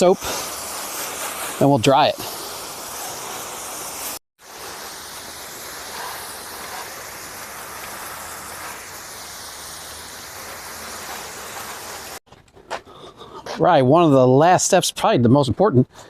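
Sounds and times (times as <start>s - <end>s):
garden hose spraying water on car: 0.0s - 12.2s.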